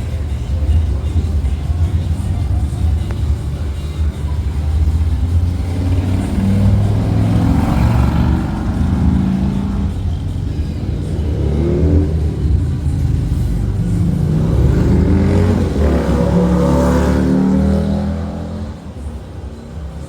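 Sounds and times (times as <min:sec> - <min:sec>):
vehicle engines running: 0:00.0 - 0:20.0
engine revving: 0:00.6 - 0:19.0
vehicle passing by: 0:04.0 - 0:19.0.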